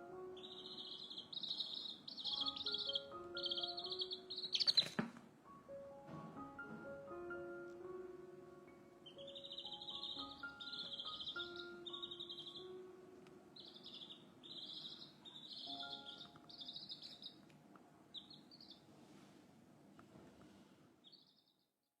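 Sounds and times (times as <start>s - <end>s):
chicks peeping: 0.0s - 5.1s, 9.0s - 18.9s, 21.0s - 21.6s
faint held music notes: 0.0s - 20.8s.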